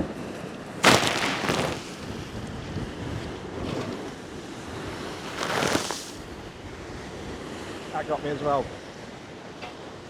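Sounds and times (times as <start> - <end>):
wave crashing against wall: 0.8 - 2.2, 5.2 - 6.3.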